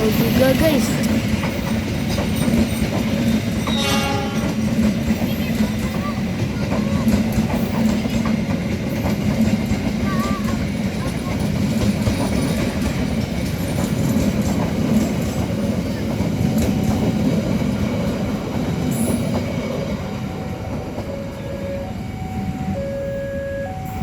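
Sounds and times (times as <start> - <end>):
train wheels rumbling on rails: 0.0 - 22.9
alternating electronic tones: 21.0 - 24.0.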